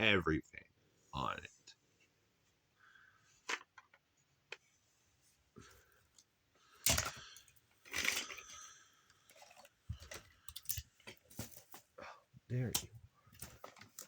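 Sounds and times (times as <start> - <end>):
plastic toy pieces clattering: 6.8 - 11.7.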